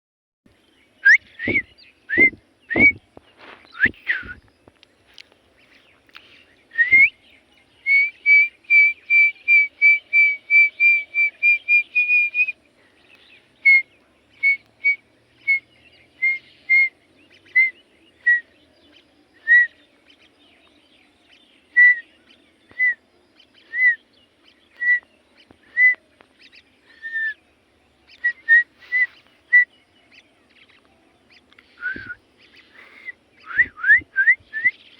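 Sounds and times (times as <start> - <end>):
bird chirping: 0.5 - 34.9.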